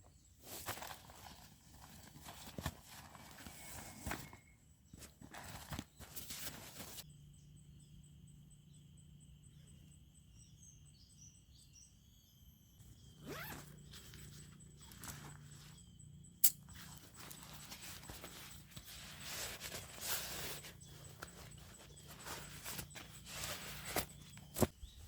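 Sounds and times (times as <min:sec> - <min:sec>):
faint high chirps: 0:07.0 - 0:25.0.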